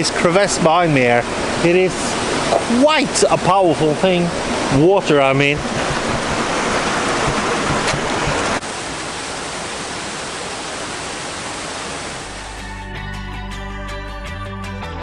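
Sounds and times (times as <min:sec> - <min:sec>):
meltwater rushing down rock: 0:00.2 - 0:12.3.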